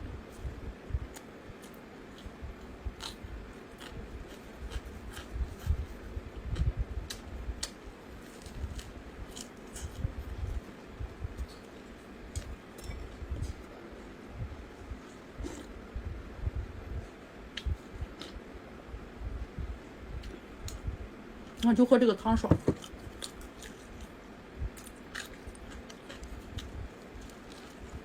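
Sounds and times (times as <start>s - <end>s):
chewing food: 3.0s - 6.0s, 22.8s - 24.2s, 24.8s - 28.0s.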